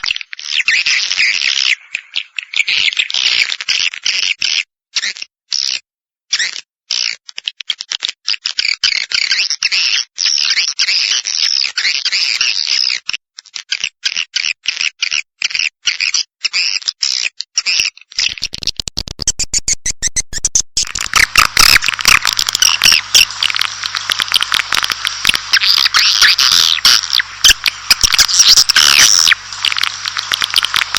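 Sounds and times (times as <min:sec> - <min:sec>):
high twittering bird chirps: 0:18.2 - 0:23.3, 0:25.5 - 0:29.8
rapid clicks: 0:18.2 - 0:30.9.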